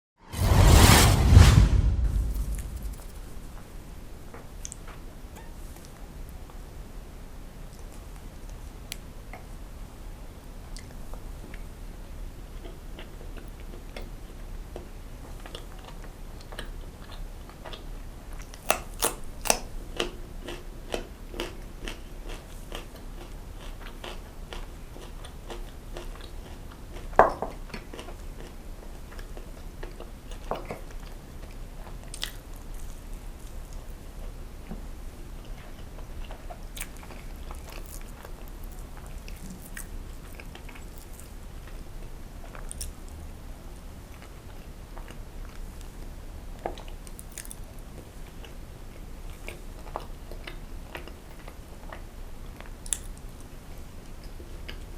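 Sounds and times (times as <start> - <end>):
chewing fried food: 12.5 - 34.4, 35.2 - 54.9.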